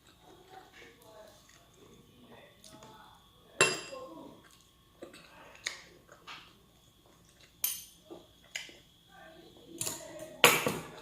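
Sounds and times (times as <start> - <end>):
cutlery clinking against a plate: 7.6 - 8.7.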